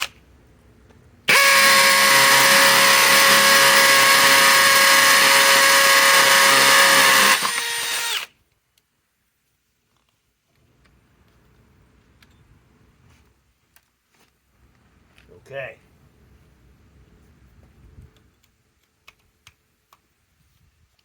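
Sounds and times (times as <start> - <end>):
hammer drill whining: 1.3 - 8.4.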